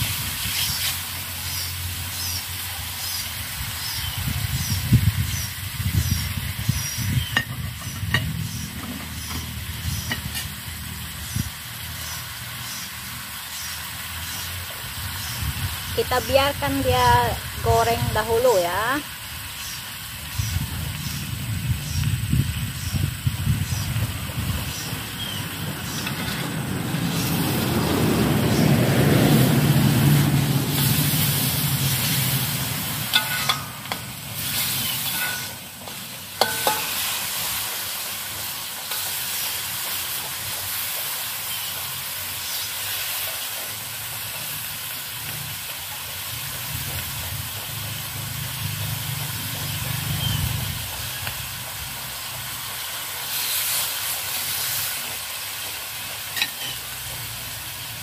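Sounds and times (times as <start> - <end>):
chicken sizzling in oil: 0.0 - 58.0
metal spatula scraping a wok: 7.3 - 10.6, 25.8 - 26.6, 30.8 - 40.0, 56.3 - 57.0
spatula knocking against wok: 35.1 - 37.1.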